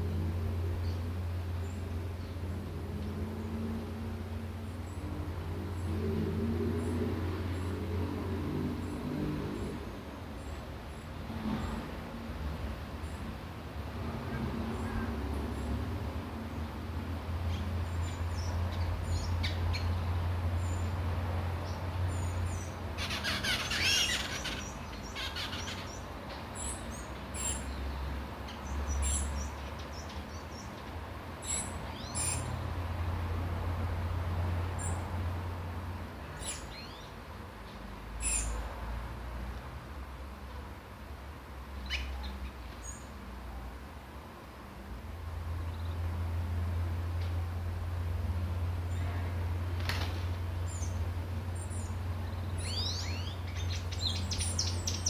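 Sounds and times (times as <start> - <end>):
small birds chirping: 17.5 - 32.6, 36.2 - 37.2, 38.2 - 38.6, 41.8 - 43.2, 50.6 - 55.0.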